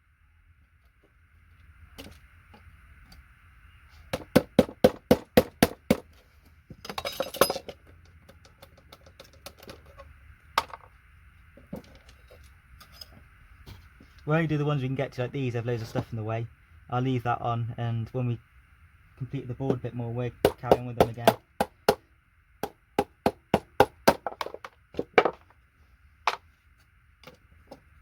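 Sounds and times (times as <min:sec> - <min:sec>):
small parts clattering: 0:06.0 - 0:10.9, 0:24.2 - 0:25.6.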